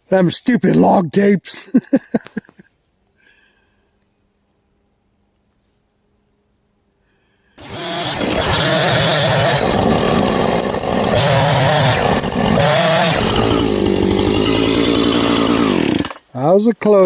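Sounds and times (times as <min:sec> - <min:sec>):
chainsaw cutting into log: 0:07.6 - 0:16.3.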